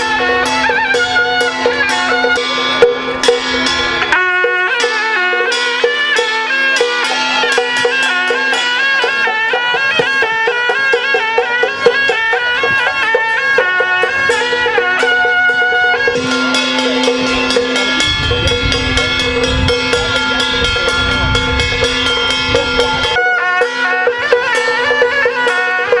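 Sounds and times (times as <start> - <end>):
drum and percussion strikes: 0.0 - 26.0
reedy wind melody: 0.0 - 26.0
held steady tone: 10.6 - 23.2.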